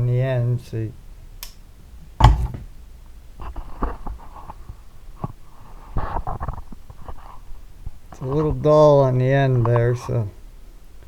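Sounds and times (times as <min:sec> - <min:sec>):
lawnmower blade knock: 0:02.0 - 0:03.1.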